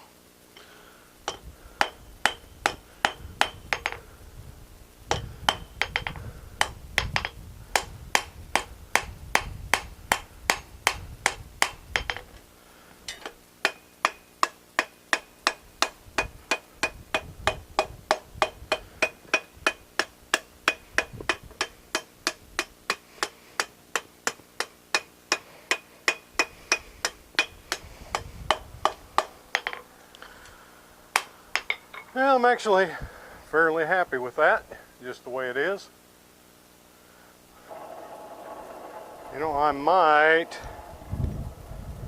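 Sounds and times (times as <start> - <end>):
hammer striking steel on anvil: 1.3 - 4.0, 5.1 - 12.3, 13.1 - 29.8
low rumble: 37.7 - 42.0.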